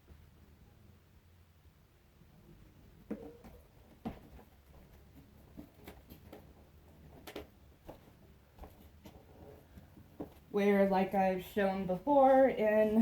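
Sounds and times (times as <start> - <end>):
low steady hum: 0.0 - 13.0
knocks clicks and rustles: 2.4 - 10.5.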